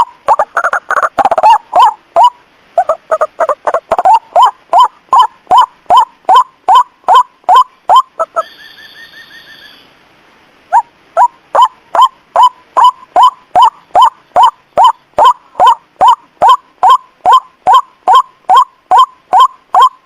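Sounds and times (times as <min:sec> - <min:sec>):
high wavering bird trill: 0:00.0 - 0:10.0, 0:10.7 - 0:20.0
waterhen rising calls: 0:00.0 - 0:20.0.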